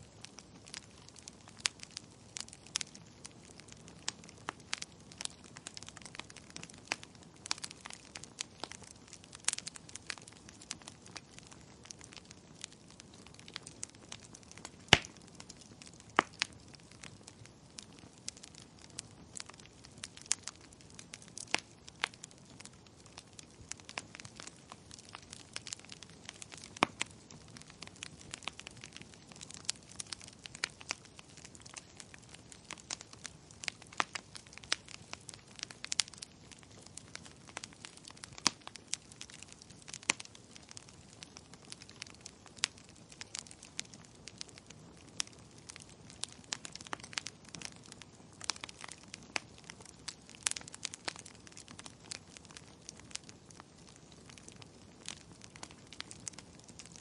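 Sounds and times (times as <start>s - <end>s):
faint steady hiss: 0.0s - 57.0s
wood fire crackling and popping: 0.0s - 57.0s.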